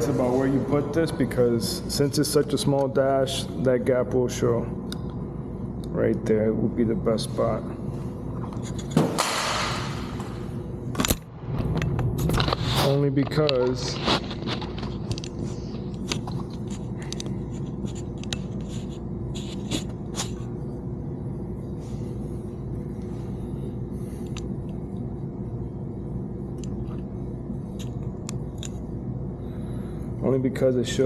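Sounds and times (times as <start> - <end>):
steady low hum: 0.0 - 31.0
light clicks and scrapes of parts: 8.4 - 9.0, 12.2 - 20.5.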